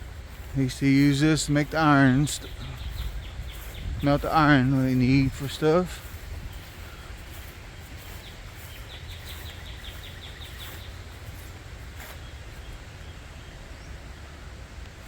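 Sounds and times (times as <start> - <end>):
steady low rumble: 0.0 - 14.5
small bird chirping: 1.6 - 13.2.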